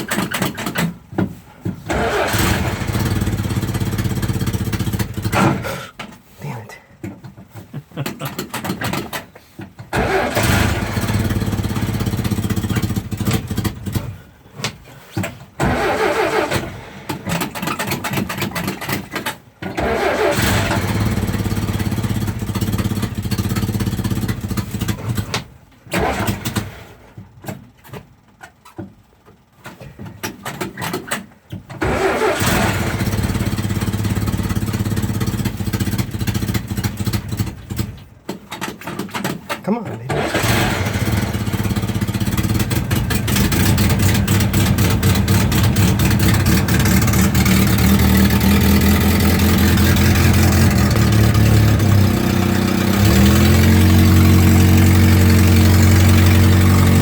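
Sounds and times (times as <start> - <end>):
engine cranking: 0.0 - 1.1, 1.7 - 6.1, 8.0 - 57.0.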